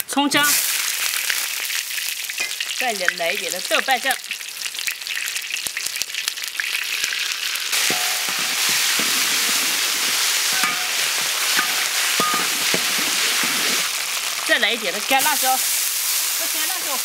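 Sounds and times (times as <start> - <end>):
paste sizzling and crackling in oil: 0.4 - 17.0
metal spatula scraping a wok: 7.8 - 14.0.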